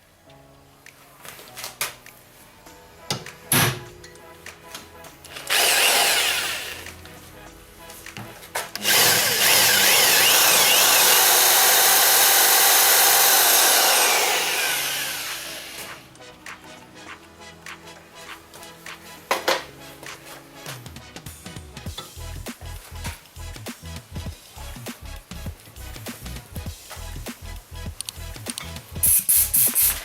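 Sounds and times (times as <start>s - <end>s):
power tool cutting metal: 5.3s - 7.0s, 8.8s - 16.0s.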